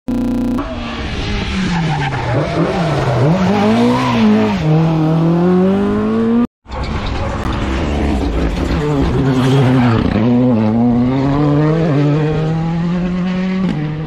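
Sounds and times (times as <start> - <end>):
car engine: 0.1 - 14.0
rally car engine revving: 7.2 - 14.0.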